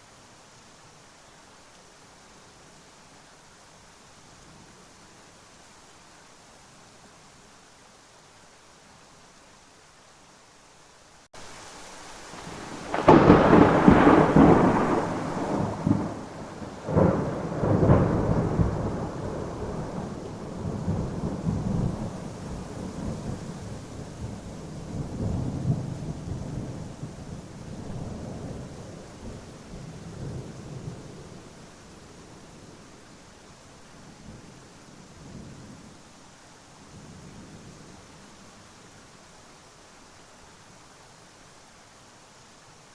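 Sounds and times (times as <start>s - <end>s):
steady rain: 0.0s - 42.9s
thunder cracks and rumble: 12.4s - 22.2s.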